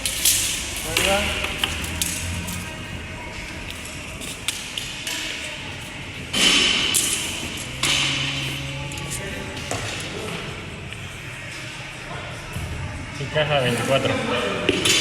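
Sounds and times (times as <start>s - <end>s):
music: 0.0s - 15.0s.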